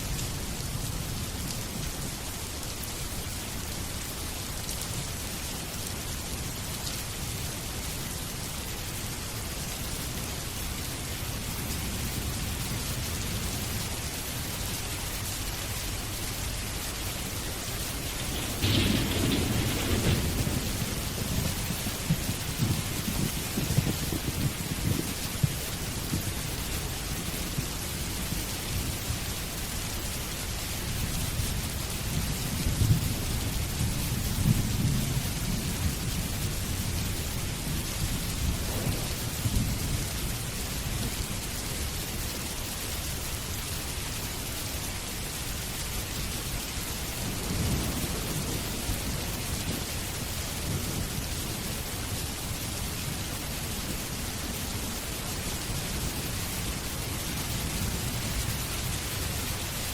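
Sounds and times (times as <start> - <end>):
steady rain: 0.0 - 59.9
thunder rolling: 17.3 - 26.3, 32.6 - 41.1, 47.2 - 52.3.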